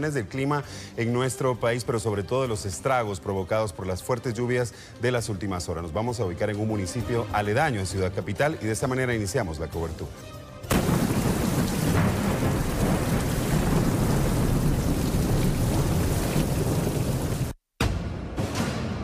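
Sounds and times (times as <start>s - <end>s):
heavy rain pouring: 10.7s - 17.6s
thunder rumbling: 10.7s - 17.6s.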